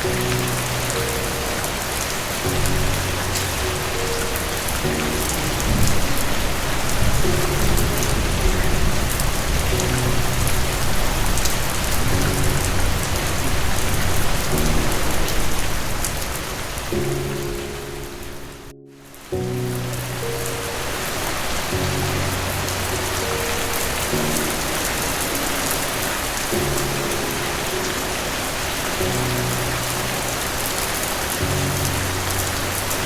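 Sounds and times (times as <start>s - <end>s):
thunder rumbling: 0.0s - 18.6s
heavy rain hissing: 0.0s - 33.0s
soft low sustained music: 0.0s - 33.0s.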